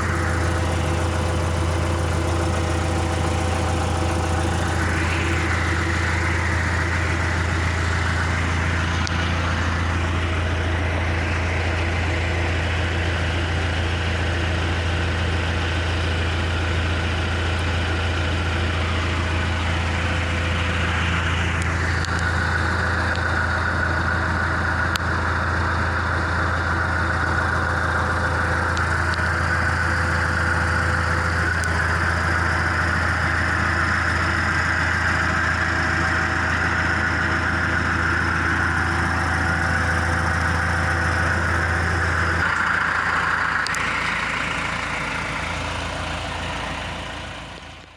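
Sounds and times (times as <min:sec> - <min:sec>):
high whine: 0:00.0 - 0:11.9
diesel engine idling: 0:00.0 - 0:47.9.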